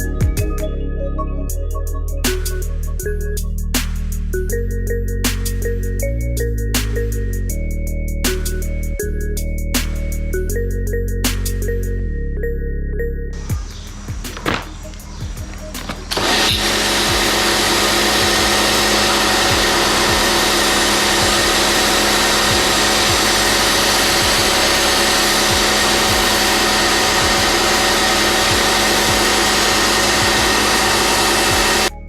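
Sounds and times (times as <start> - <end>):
cleaning machine motor whining: 13.4 - 31.9.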